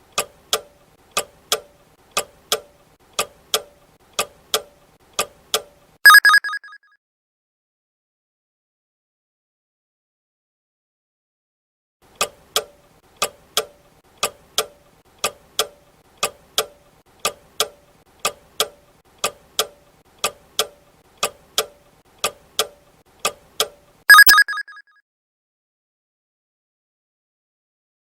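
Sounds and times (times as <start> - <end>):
loud ringing signal: 6.1 - 6.7, 24.1 - 24.8
clock ticking: 12.2 - 24.7.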